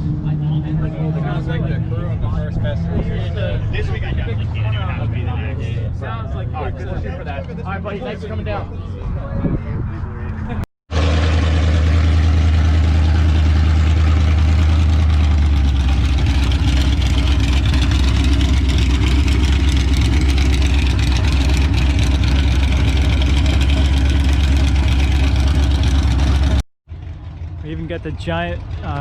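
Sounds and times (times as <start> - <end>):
vehicle engine idling: 10.9 - 29.0.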